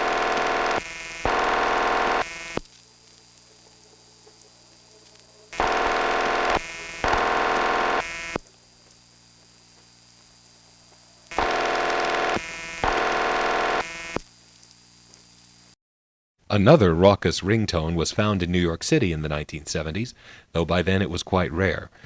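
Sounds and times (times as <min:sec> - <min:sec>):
buzzy phone ringback tone: 0:00.0 - 0:02.6, 0:04.9 - 0:08.4, 0:11.3 - 0:14.2
low phone line hum: 0:00.0 - 0:15.8.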